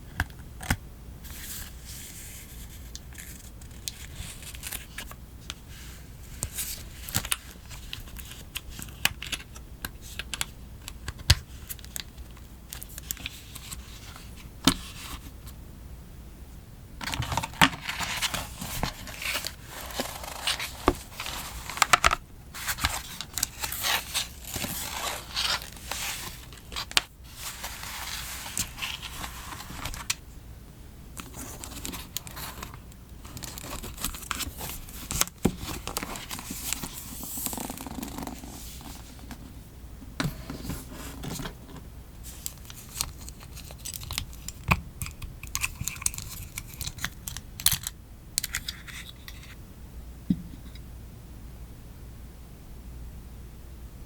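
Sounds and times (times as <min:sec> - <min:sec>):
paper rustling: 0:17.0 - 0:30.2, 0:31.2 - 0:39.5, 0:40.2 - 0:49.6.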